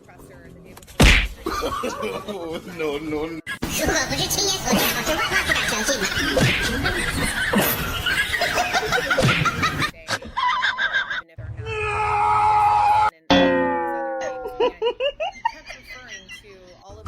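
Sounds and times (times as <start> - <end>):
people laughing: 1.4 - 2.9, 4.7 - 11.4, 14.2 - 16.7
steady held tone: 13.3 - 14.9.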